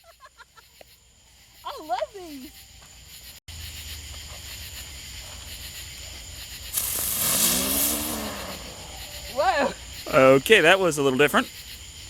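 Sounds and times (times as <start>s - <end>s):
insects chirring: 0.0s - 12.0s
firework hissing: 6.6s - 10.0s.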